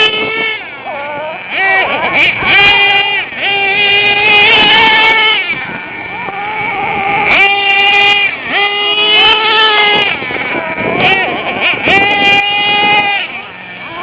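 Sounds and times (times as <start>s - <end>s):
nitro engine revving: 0.0s - 14.0s.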